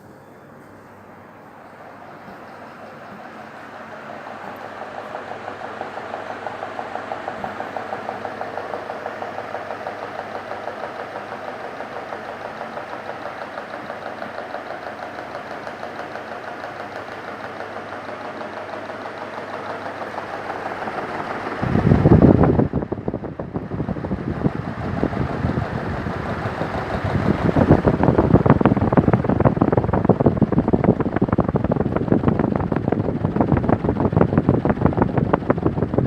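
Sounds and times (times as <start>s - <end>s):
ceiling fan humming: 0.0s - 36.0s.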